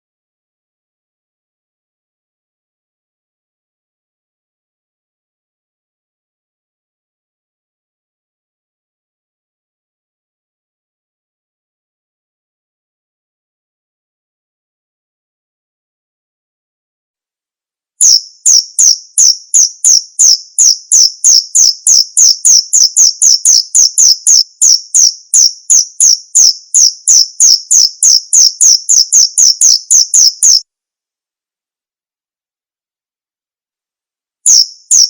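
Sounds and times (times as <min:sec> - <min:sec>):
cricket chirping: 0:18.0 - 0:30.6, 0:34.5 - 0:35.0.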